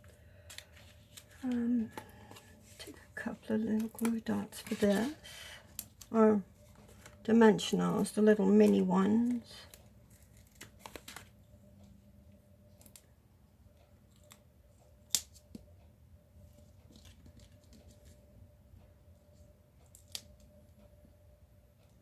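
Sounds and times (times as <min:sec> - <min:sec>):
paper handling: 0:00.0 - 0:03.1, 0:03.7 - 0:05.2, 0:08.0 - 0:11.4
faint steady hum: 0:00.0 - 0:22.0.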